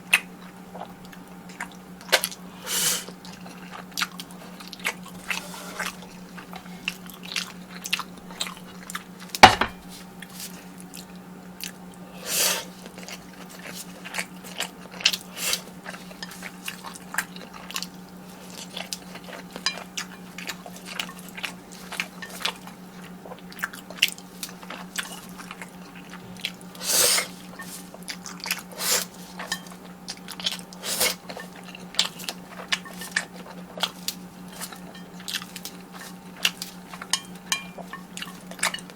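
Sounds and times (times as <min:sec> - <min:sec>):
person chewing food: 0:00.0 - 0:38.9.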